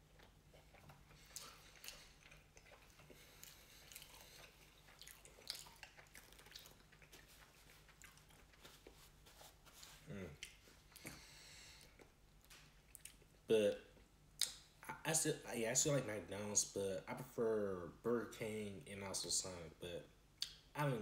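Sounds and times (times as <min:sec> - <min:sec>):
faint chewing: 0:00.0 - 0:13.4.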